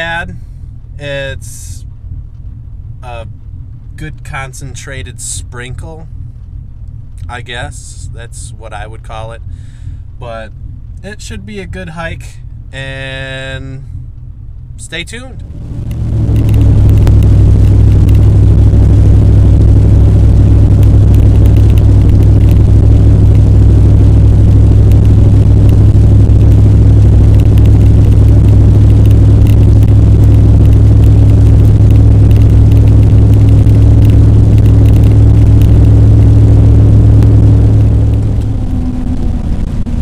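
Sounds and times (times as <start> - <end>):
car engine and road drone: 0.0 - 40.0.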